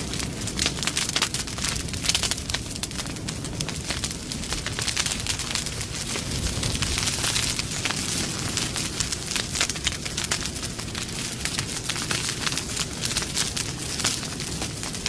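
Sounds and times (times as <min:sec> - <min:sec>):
campfire crackling: 0:00.0 - 0:15.0
fire popping: 0:00.0 - 0:15.0
flames rumbling: 0:00.0 - 0:15.0.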